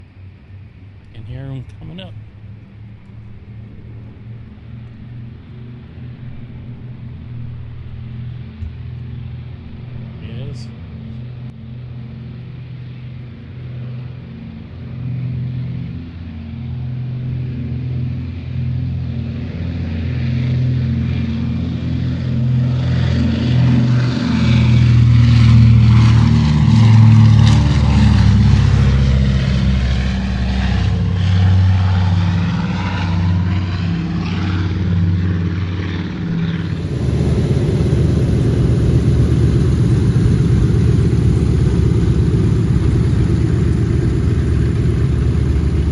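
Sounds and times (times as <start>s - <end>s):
heavy rumble of taxiing aircraft: 0.0s - 45.9s
radial engines droning: 0.0s - 45.9s.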